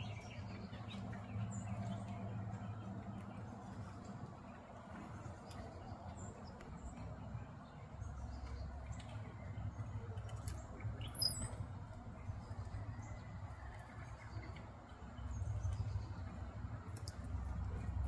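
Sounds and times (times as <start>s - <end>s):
small bird chirps: 8.1s - 11.7s.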